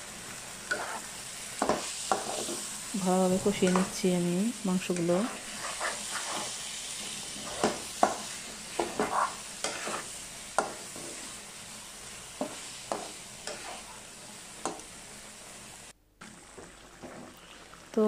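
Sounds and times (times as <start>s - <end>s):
meat sizzling in a frying pan: 0.0s - 18.0s
spatula scraping and knocking pan: 0.6s - 2.7s, 3.3s - 4.0s, 4.9s - 6.6s, 7.2s - 11.4s, 12.4s - 14.0s.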